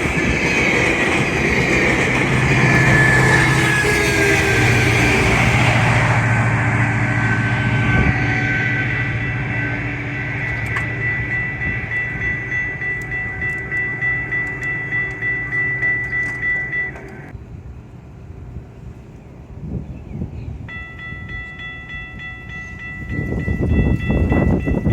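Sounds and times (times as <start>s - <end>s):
steady high tone: 0.0s - 17.3s, 20.7s - 24.9s
wheels clattering over rails: 0.0s - 17.3s
passenger train passing: 0.0s - 24.9s.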